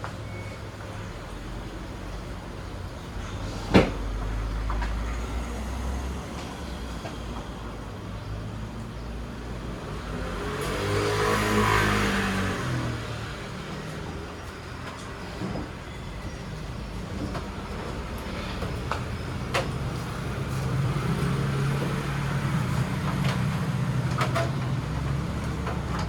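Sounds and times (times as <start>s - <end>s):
motor vehicle passing by: 3.2s - 26.0s.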